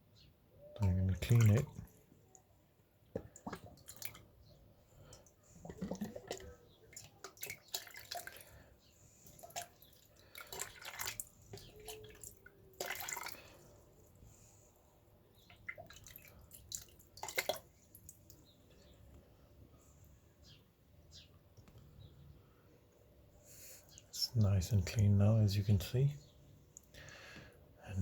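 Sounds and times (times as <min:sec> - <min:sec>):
water splashing and dripping: 0:00.8 - 0:02.0, 0:03.1 - 0:04.4, 0:05.0 - 0:08.6, 0:09.2 - 0:13.7, 0:15.4 - 0:18.4.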